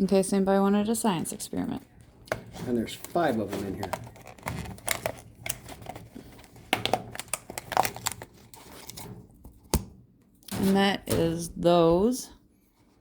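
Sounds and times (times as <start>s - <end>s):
plastic container crinkling: 2.3s - 9.4s
rustles and clicks of handling: 2.3s - 9.6s.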